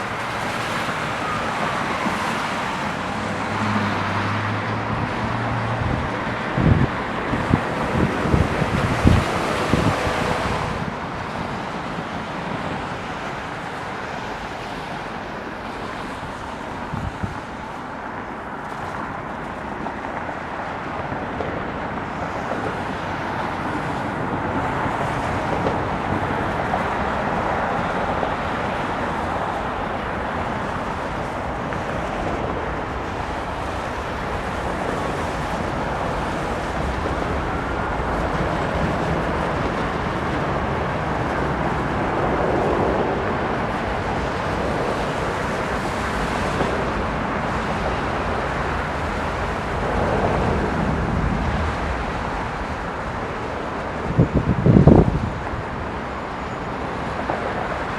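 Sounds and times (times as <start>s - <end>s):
jet engine rumble: 0.0s - 57.9s.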